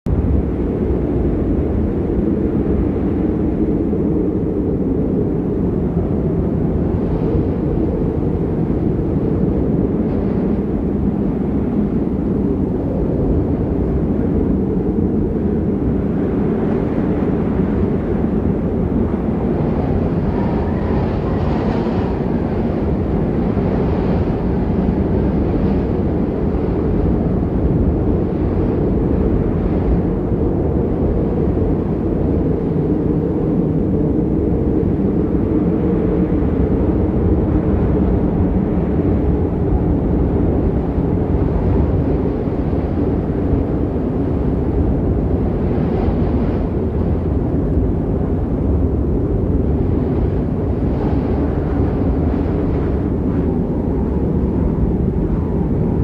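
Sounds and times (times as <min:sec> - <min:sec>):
low rumbling noise: 0:00.1 - 0:56.0.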